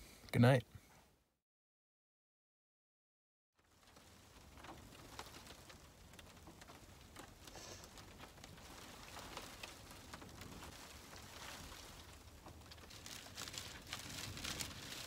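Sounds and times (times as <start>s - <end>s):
rain and hail tapping on roof: 3.6s - 15.0s.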